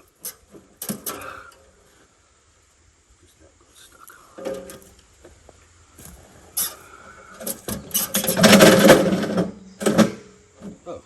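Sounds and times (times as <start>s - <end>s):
engine turning over: 6.0s - 10.3s
engine recoil starter pulled: 7.4s - 10.3s.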